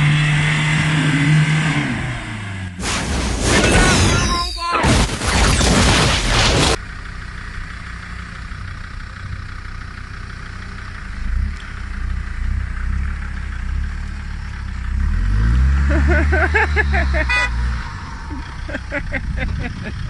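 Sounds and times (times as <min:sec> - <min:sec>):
loud explosion: 0:02.8 - 0:06.8
vehicle engine running at low revs: 0:06.7 - 0:20.0.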